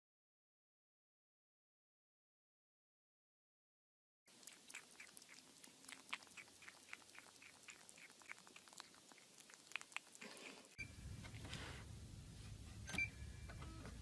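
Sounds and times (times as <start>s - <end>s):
kitten chewing clicks: 4.3s - 10.8s.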